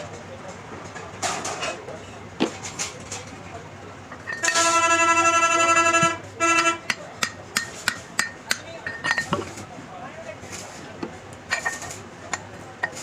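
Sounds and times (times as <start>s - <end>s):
vehicle horn blasts: 4.4s - 6.9s
hammer strikes on metal: 6.8s - 9.4s.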